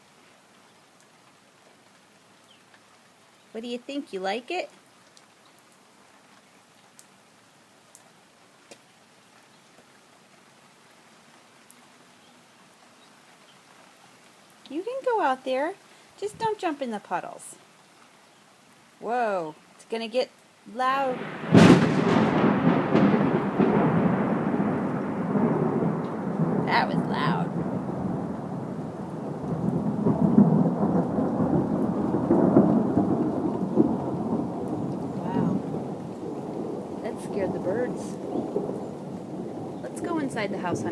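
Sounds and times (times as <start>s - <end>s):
light rain hissing: 0.0s - 40.9s
drip ticks: 5.0s - 5.7s
thunder rumbling: 21.0s - 40.9s.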